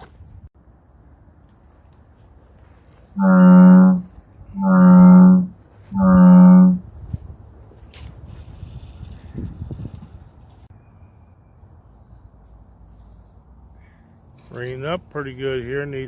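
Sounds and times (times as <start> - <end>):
steady horn-like tones: 3.2 - 6.9.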